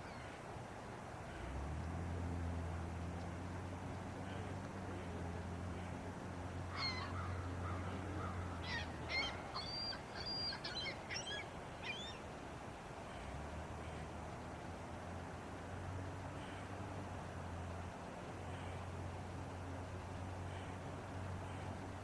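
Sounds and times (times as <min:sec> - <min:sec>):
bird chirping: 0:08.6 - 0:12.2.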